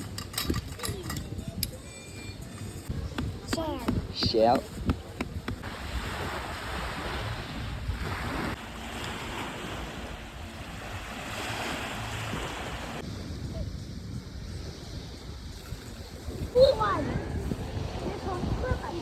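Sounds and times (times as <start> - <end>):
wind buffeting microphone: 2.9 - 19.0
sea waves washing on shore: 3.8 - 13.4.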